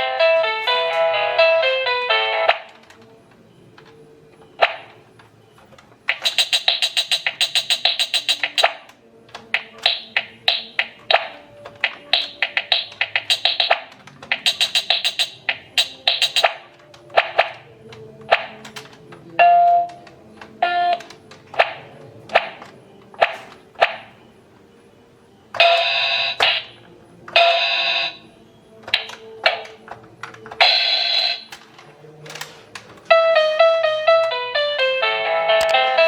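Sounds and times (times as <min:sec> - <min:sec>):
electronic beeping melody: 0:00.6 - 0:08.9, 0:09.5 - 0:18.6, 0:19.3 - 0:29.8, 0:30.6 - 0:31.6
pitched electronic blips: 0:06.1 - 0:08.8, 0:09.6 - 0:17.6
electronic drum beats: 0:06.1 - 0:08.9, 0:09.5 - 0:17.6.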